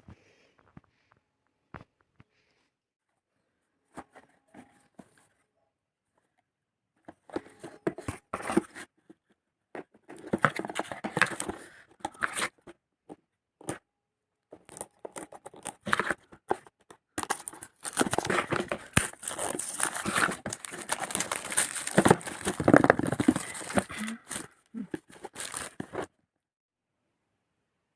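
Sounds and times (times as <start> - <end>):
packaging rustling and tearing: 17.2 - 26.1.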